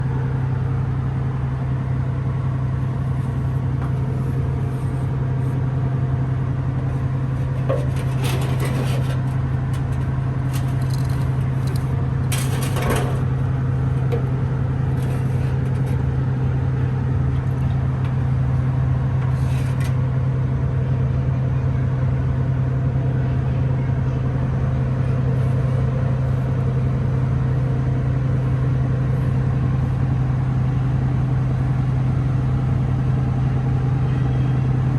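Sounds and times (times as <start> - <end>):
motor humming: 3.1 - 20.0
scraping or clattering noises: 7.4 - 13.3, 14.9 - 16.0, 19.2 - 20.0.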